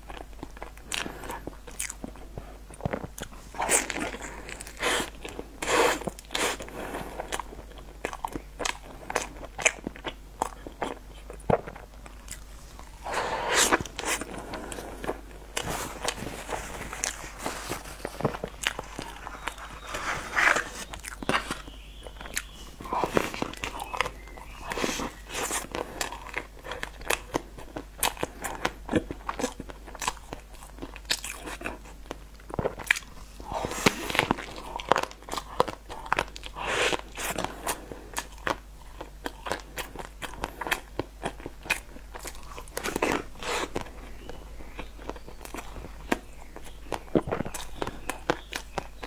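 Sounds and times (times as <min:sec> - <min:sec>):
wet chewing and smacking: 0:00.0 - 0:49.0
person biting cake: 0:00.1 - 0:31.9
mouth clicks: 0:18.6 - 0:27.3.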